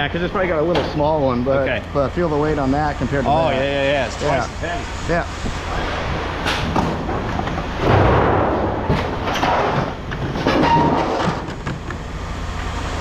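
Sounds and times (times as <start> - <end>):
low rumble: 4.5 - 10.6
scrap metal clanking and scraping: 6.0 - 11.8.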